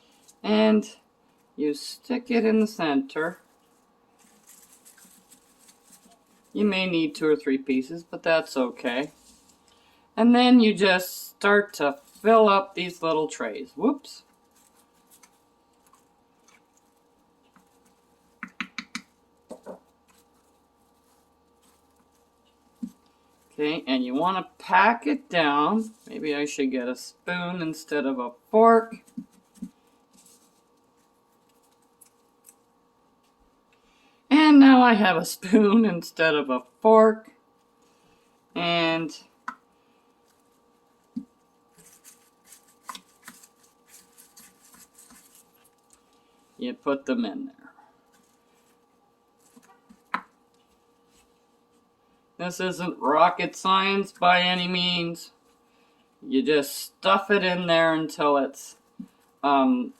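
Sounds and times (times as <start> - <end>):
fork tapping and scraping: 18.4 - 20.2.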